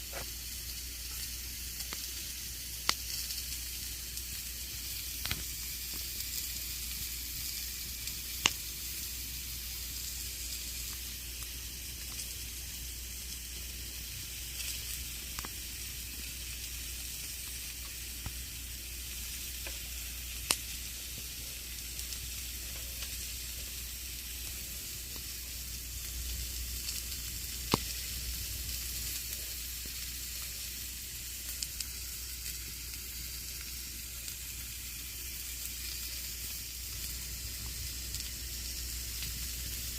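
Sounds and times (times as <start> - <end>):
campfire crackling hiss: 0.0 - 39.9
sharp fire pops: 5.2 - 6.2, 8.3 - 8.7, 26.1 - 30.0.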